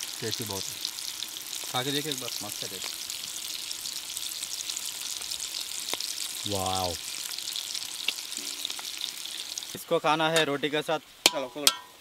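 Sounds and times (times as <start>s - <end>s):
meat sizzling in a pan: 0.0s - 12.0s
man saying wow: 6.5s - 7.0s.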